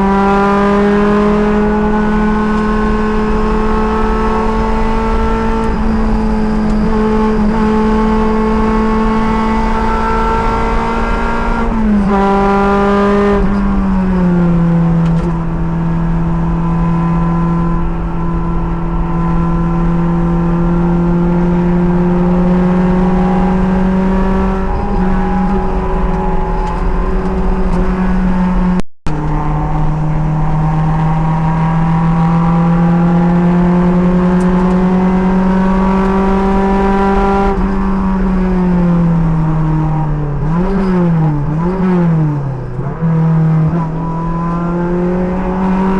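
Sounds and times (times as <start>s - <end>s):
race car engine under load: 0.0s - 45.9s
wind noise: 0.0s - 45.9s.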